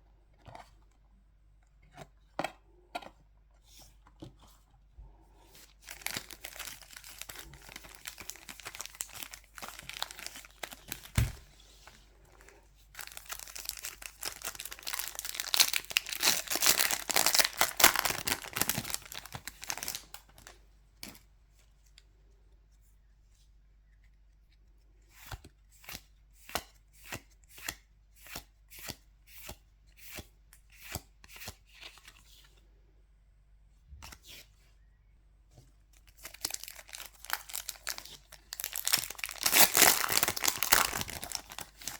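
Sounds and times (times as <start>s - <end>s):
foil wrappers tearing and crinkling: 5.8s - 11.4s, 13.0s - 20.5s, 36.1s - 41.9s.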